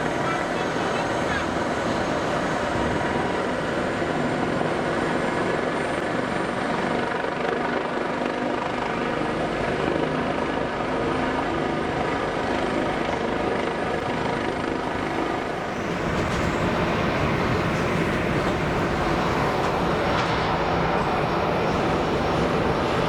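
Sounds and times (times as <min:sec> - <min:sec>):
jet engines of airliner landing: 0:00.0 - 0:07.6, 0:11.2 - 0:23.0
faint steady whining tones: 0:10.3 - 0:23.0.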